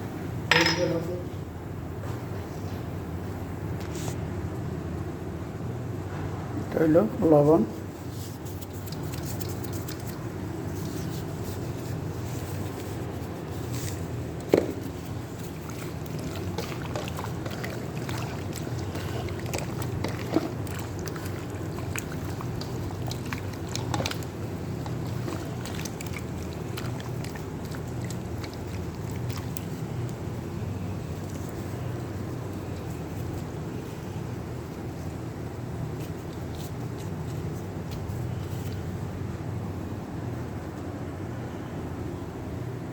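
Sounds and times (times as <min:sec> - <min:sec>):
steady low hum: 0:00.0 - 0:42.9
hands squelching meat in marinade: 0:08.4 - 0:33.6.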